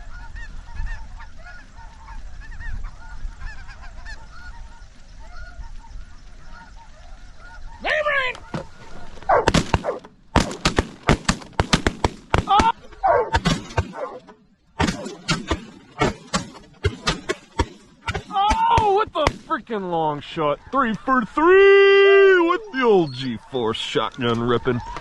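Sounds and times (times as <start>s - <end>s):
wind rumble: 0.0s - 18.1s
geese calling: 0.0s - 25.0s
loud shotgun shots: 9.3s - 14.2s, 14.8s - 19.6s
person shouting: 12.5s - 13.3s, 18.2s - 19.3s.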